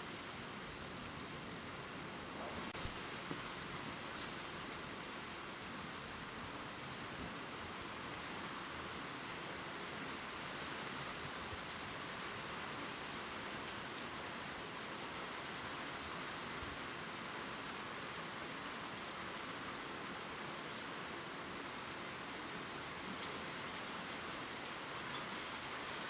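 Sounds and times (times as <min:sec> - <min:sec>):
gentle rain on leaves: 0:00.0 - 0:26.0
faint raindrop ticks: 0:10.9 - 0:13.8, 0:19.4 - 0:19.8, 0:25.0 - 0:26.0.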